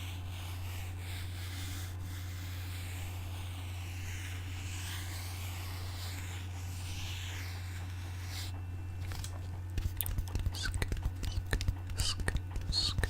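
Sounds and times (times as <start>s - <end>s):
soft rubbing and scratching: 0.0s - 13.0s
steady low hum: 0.0s - 13.0s.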